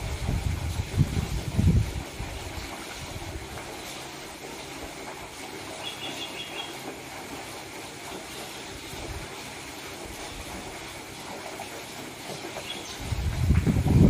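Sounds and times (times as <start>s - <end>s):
bird chirping: 5.8s - 6.8s, 12.6s - 13.0s.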